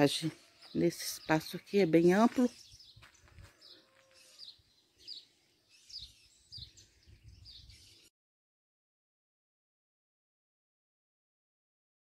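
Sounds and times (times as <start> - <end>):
small bird chirping: 0.0 - 8.1.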